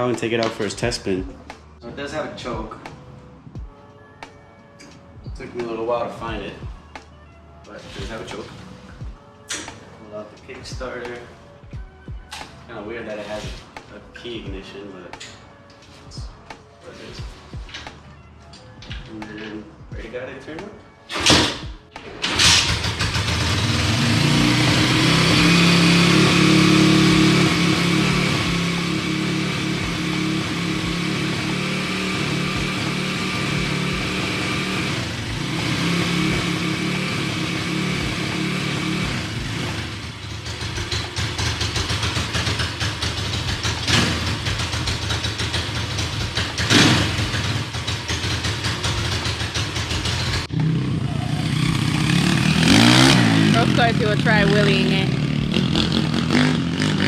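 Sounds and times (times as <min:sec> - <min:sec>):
motorcycle engine idling: 0:22.3 - 0:36.5, 0:37.4 - 0:54.3.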